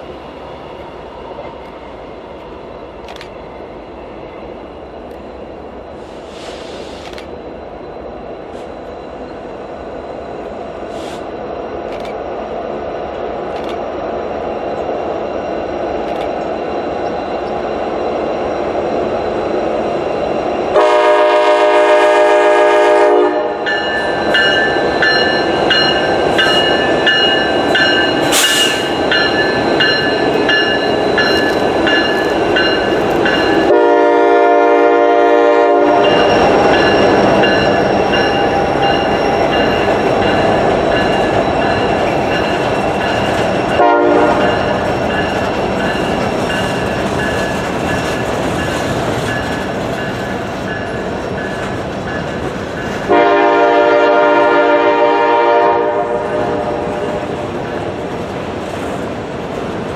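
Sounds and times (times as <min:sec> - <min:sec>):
freight train rumbling and clattering: 0:00.0 - 0:59.9
locomotive air horn: 0:20.8 - 0:23.6, 0:33.7 - 0:36.2, 0:43.8 - 0:44.5, 0:53.1 - 0:56.9.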